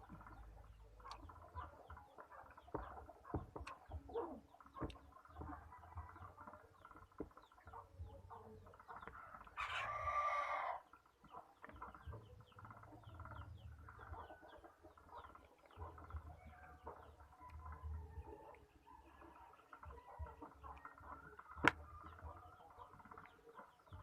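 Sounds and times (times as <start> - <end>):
rooster crowing: 9.6 - 10.8.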